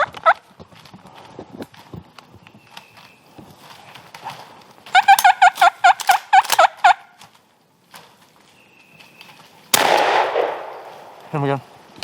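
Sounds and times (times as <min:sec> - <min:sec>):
turkey gobbling: 0:05.0 - 0:07.0.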